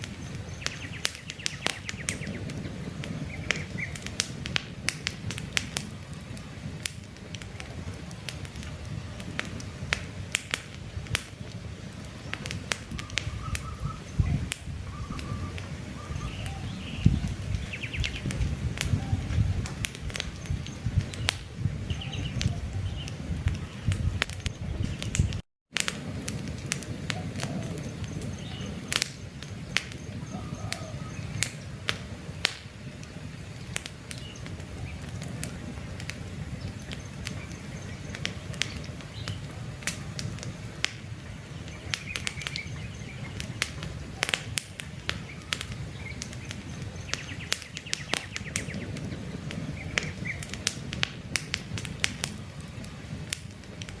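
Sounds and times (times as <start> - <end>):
campfire crackling and popping: 0.0 - 54.0
low rush of flames: 0.0 - 54.0
faint bird chirps: 12.9 - 18.3, 30.0 - 31.5.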